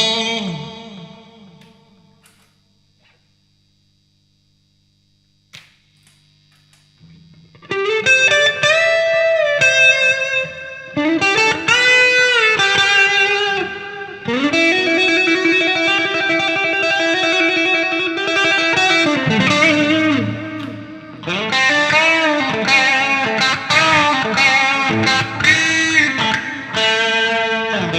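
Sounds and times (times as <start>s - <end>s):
distorted electric guitar: 0.0s - 27.9s
faint hum: 0.0s - 27.9s
click: 1.6s - 3.2s.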